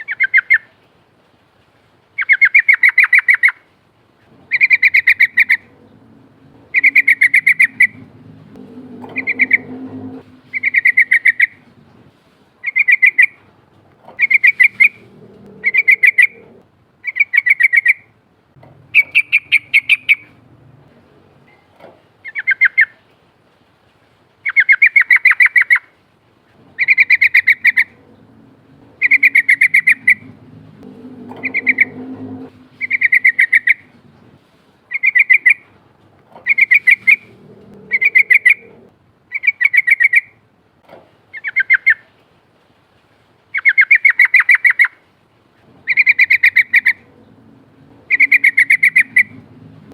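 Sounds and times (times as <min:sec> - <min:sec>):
bird singing bubbling phrases: 0:04.5 - 0:11.6, 0:12.6 - 0:13.4, 0:14.2 - 0:18.1, 0:18.9 - 0:20.4, 0:26.8 - 0:34.0, 0:34.9 - 0:35.6, 0:36.4 - 0:40.4, 0:45.8 - 0:49.9.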